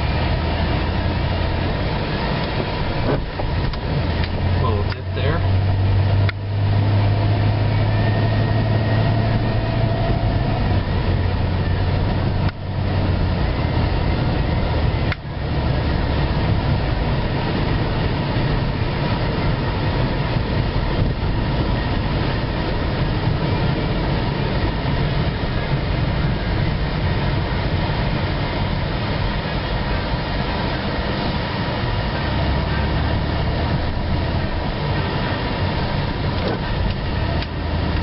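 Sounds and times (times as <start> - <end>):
car engine and road noise: 0.0 - 38.0
low engine hum: 0.0 - 38.0.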